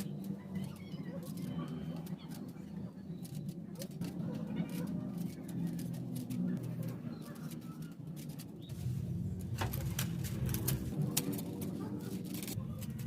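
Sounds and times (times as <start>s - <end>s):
dove cooing: 0.0s - 8.0s.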